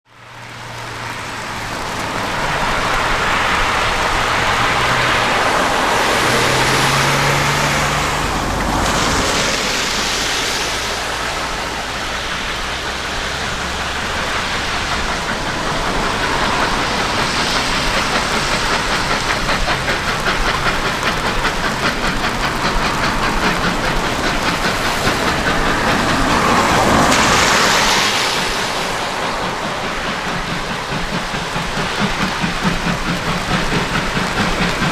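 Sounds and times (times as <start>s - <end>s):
train rumbling: 0.1s - 34.9s.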